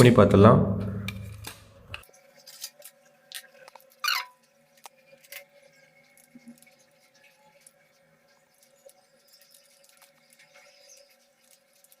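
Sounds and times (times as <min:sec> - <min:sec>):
short squeak: 0:04.0 - 0:04.4.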